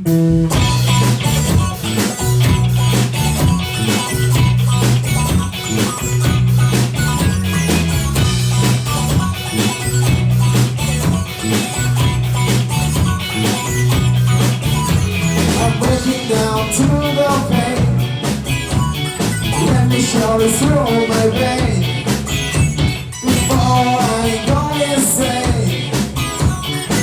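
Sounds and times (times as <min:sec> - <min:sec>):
bass guitar line: 0:00.0 - 0:27.0
drum kit beat: 0:00.0 - 0:27.0
rock band playing: 0:00.0 - 0:27.0.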